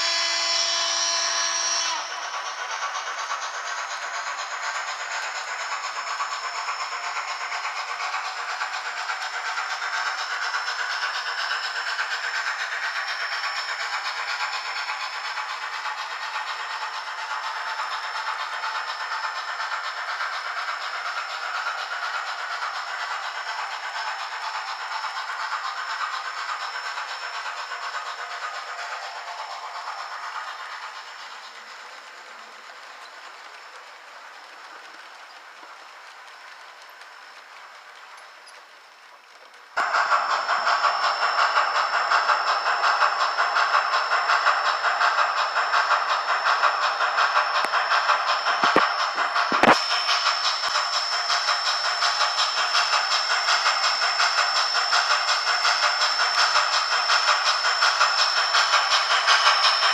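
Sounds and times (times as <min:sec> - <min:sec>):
steam locomotive whistle: 0:00.0 - 0:02.6, 0:39.8 - 0:59.9
hissing steam exhaust: 0:00.0 - 0:59.9.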